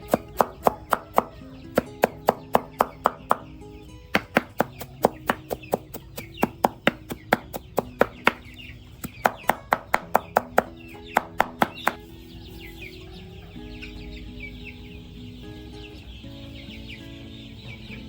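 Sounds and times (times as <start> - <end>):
knife chopping on cutting board: 0.0 - 3.5, 4.2 - 8.4.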